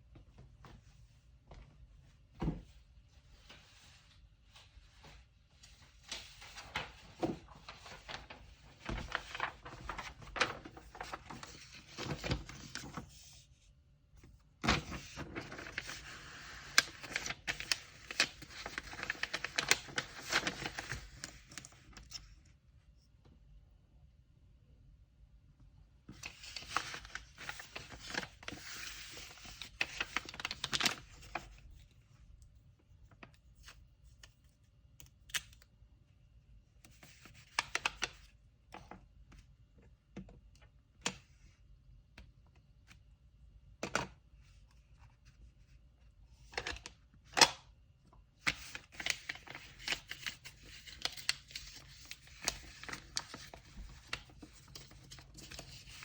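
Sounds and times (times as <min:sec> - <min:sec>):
paper rustling and crinkling: 0:03.4 - 0:13.6, 0:14.6 - 0:22.4, 0:26.1 - 0:32.0, 0:48.4 - 0:56.0.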